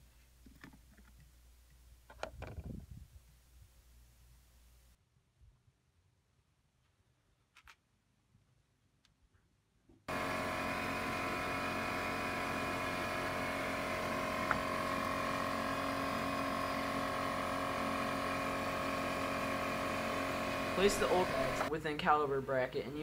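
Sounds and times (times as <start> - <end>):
small click: 7.5 - 7.8
steady mechanical hum: 10.1 - 23.0.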